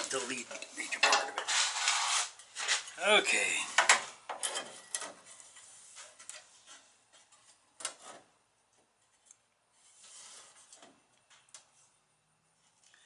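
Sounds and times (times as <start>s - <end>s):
sheet steel rubbing and scraping: 0.0s - 3.1s, 9.7s - 10.9s.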